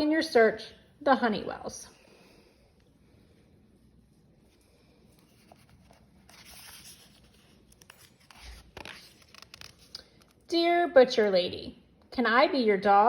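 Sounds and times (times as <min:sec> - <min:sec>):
book page turning: 0:04.0 - 0:10.5.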